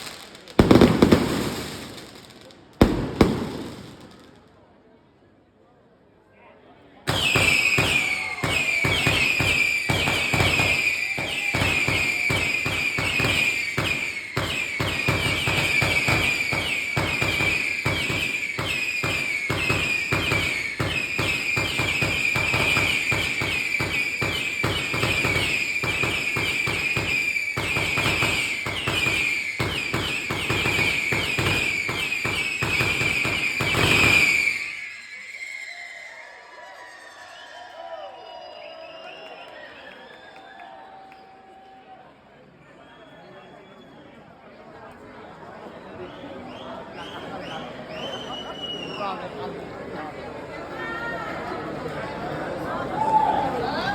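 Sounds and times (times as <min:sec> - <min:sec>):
shrill firework whistling: 0:00.0 - 0:04.5, 0:07.1 - 0:41.9, 0:42.6 - 0:44.2, 0:45.2 - 0:49.4
firework explosions: 0:00.0 - 0:04.6, 0:07.1 - 0:36.2.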